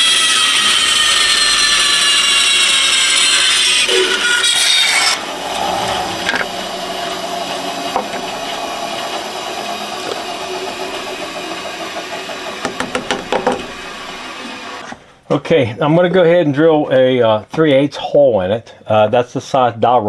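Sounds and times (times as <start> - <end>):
power tool cutting wood: 0.0 - 15.0
steady mechanical hum: 0.8 - 15.7
wood knocking: 7.8 - 8.6, 10.0 - 14.6.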